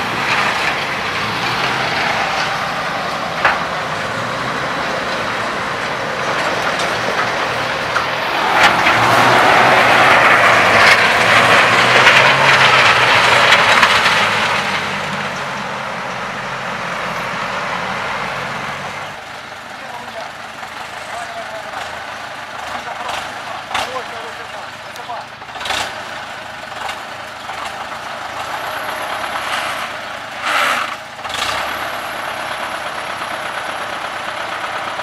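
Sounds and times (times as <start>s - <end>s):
rushing noise: 0.0s - 19.3s
truck engine running: 0.0s - 35.0s.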